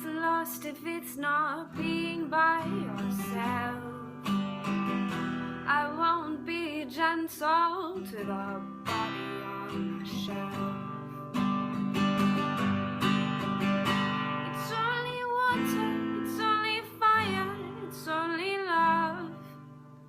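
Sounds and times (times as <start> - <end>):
person singing: 0.0 - 4.2, 5.7 - 11.4, 14.4 - 19.6
strummed acoustic guitar: 0.0 - 20.0.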